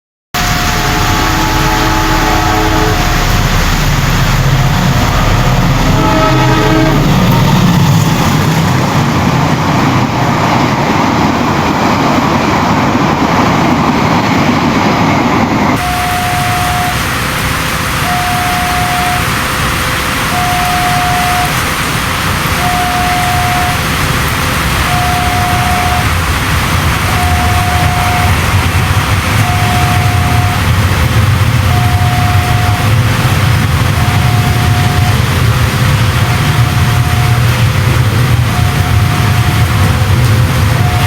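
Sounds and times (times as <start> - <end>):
train horn: 0.4 - 8.2, 15.8 - 17.2, 18.0 - 19.4, 20.3 - 21.7, 22.6 - 24.1, 24.8 - 30.9, 31.6 - 41.0
train wheels rumbling on rails: 0.4 - 41.0
steady repeating tone: 15.8 - 17.1, 18.0 - 19.3, 20.3 - 21.6, 22.6 - 24.0, 24.8 - 26.2, 27.0 - 30.8, 31.5 - 40.0.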